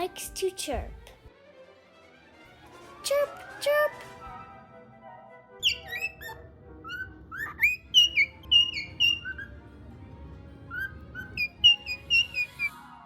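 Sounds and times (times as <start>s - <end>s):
faint background music: 0.0s - 13.0s
high bird-like chirps: 5.6s - 9.6s, 10.7s - 12.9s.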